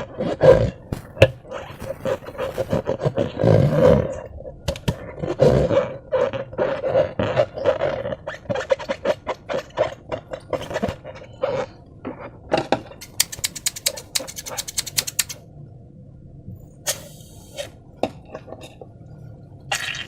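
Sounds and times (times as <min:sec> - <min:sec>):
slime squelching: 0:00.9 - 0:04.0
sharp clicking pops: 0:13.0 - 0:15.4.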